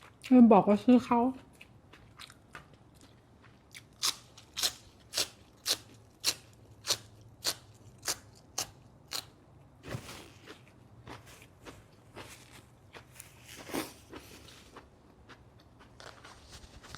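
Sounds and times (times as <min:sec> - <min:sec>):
person chewing crunchy food: 0:01.4 - 0:09.4, 0:10.2 - 0:16.8
soft rustle: 0:09.8 - 0:10.6, 0:16.0 - 0:16.9.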